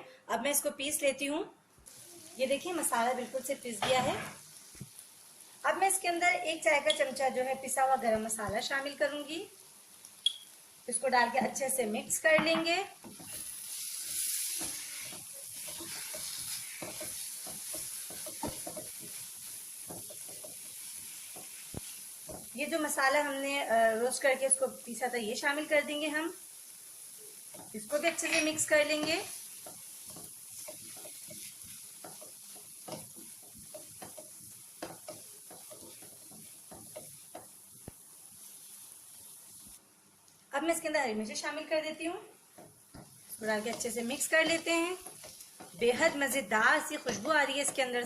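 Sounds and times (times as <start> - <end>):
chicken sizzling in oil: 1.9 - 12.0, 13.0 - 39.8, 42.6 - 48.0
spoon scraping against pan: 12.4 - 22.5, 27.4 - 37.6, 42.5 - 48.0
utensil scraping a pan: 13.1 - 19.3.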